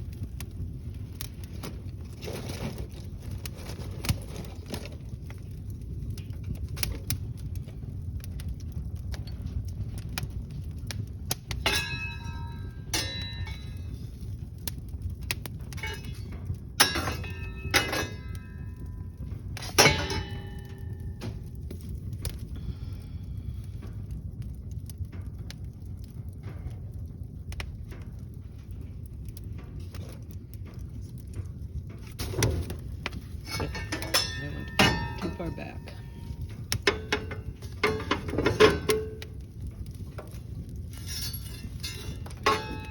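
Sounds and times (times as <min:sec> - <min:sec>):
low rumble: 0:00.0 - 0:42.9
wood fire crackling: 0:00.0 - 0:42.9
metallic clanks on grate: 0:11.3 - 0:14.0, 0:15.4 - 0:21.5, 0:32.0 - 0:42.9.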